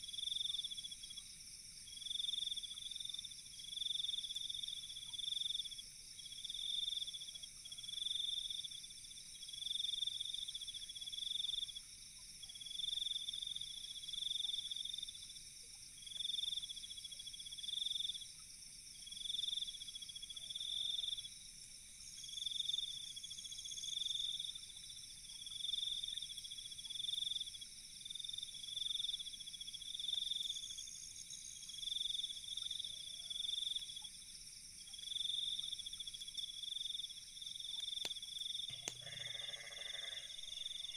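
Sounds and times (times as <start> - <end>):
high-pitched insect trilling: 38.7 - 40.9
loud insect trilling: 38.7 - 40.9.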